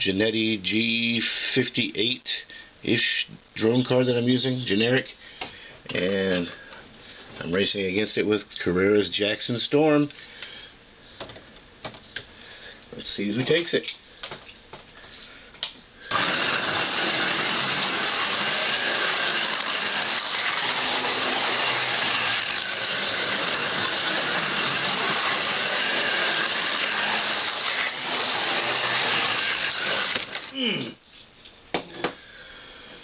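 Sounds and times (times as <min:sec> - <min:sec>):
slot car motors whirring: 0:16.1 - 0:30.6.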